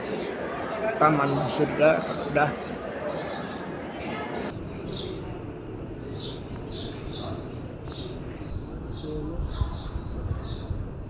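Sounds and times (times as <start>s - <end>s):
crowd murmur in a large hall: 0.0s - 11.0s
small bird chirping: 6.0s - 10.8s.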